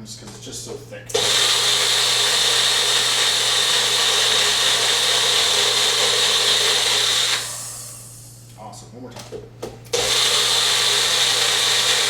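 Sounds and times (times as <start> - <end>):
blender motor running: 1.1 - 8.4, 10.0 - 12.0.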